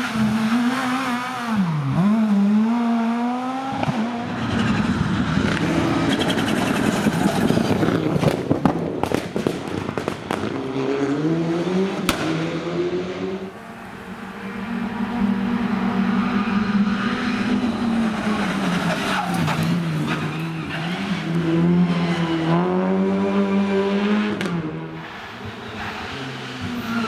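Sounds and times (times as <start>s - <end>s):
rally car engine revving: 0.0s - 27.0s
exhaust cracks and pops: 3.8s - 10.6s.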